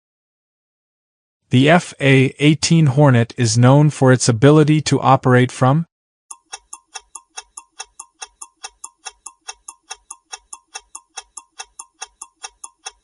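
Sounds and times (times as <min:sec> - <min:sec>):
clock ticking: 0:06.3 - 0:13.0.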